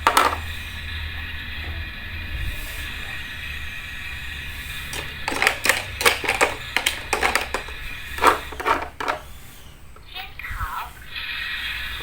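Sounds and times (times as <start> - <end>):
small utensils clicking and tapping: 0.0 - 0.5, 4.9 - 9.3.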